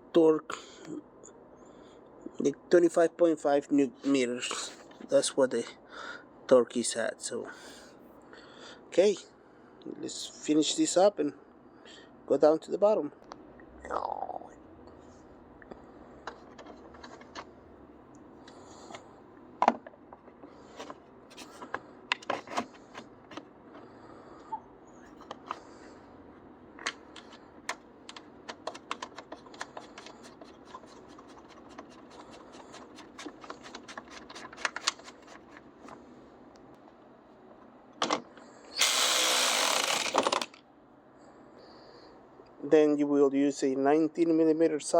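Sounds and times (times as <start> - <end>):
quick ratcheting clicks: 38.8 - 40.6.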